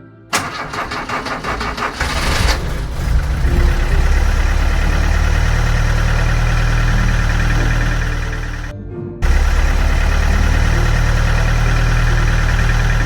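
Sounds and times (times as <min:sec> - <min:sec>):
engine idling: 0:00.3 - 0:13.0
engine starter cranking: 0:00.3 - 0:13.0.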